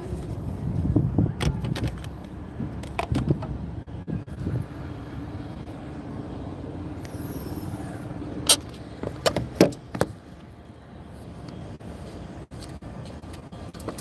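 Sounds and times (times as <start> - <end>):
car engine humming: 0.0 - 14.0.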